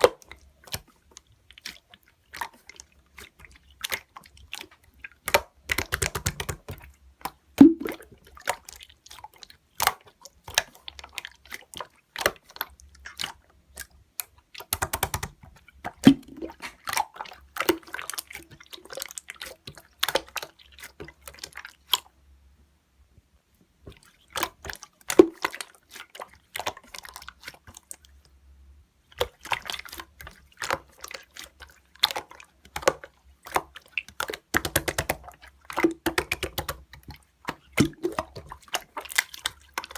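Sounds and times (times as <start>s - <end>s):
slime squeezed by hand: 7.6s - 8.1s, 15.9s - 17.2s.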